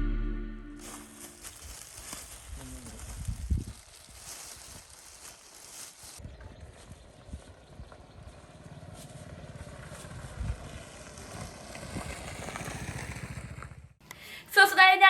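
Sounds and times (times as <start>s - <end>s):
small motorbike engine running: 7.4s - 13.9s.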